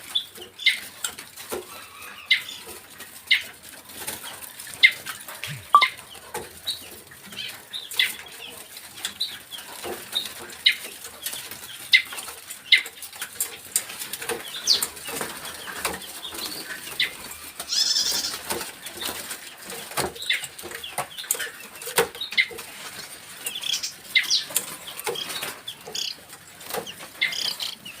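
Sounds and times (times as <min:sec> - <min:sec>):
decoy bird chirps and clicks: 0:05.4 - 0:06.8, 0:23.5 - 0:27.8.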